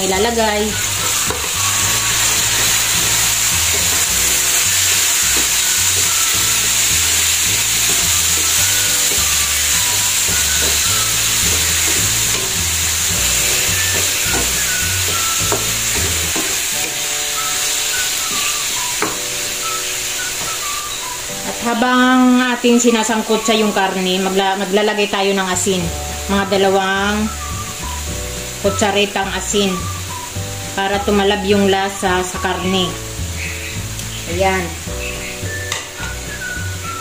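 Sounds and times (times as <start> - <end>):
meat sizzling in hot oil: 0.0 - 37.0
wooden spatula stirring: 0.8 - 19.3.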